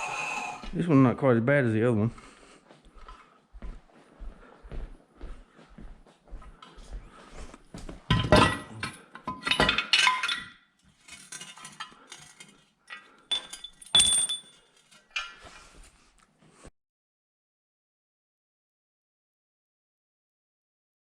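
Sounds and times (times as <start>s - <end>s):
metal tools clinking and clanking: 8.1s - 15.8s.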